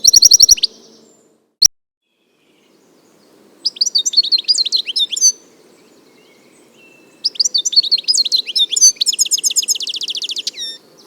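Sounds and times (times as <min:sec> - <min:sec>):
goldfinch singing: 0:00.0 - 0:01.1, 0:03.6 - 0:10.8.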